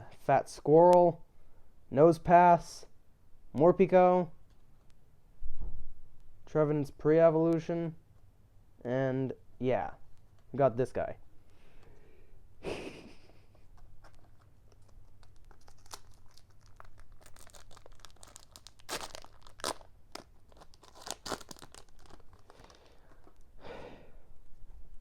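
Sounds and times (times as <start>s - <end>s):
foil wrapper tearing and crinkling: 14.0s - 23.5s.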